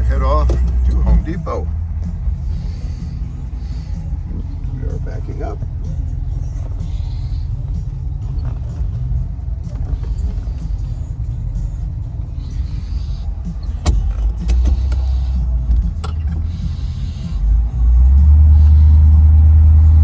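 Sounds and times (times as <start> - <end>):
car engine low rumble: 0.0 - 20.0
sharp clicks: 13.6 - 16.5.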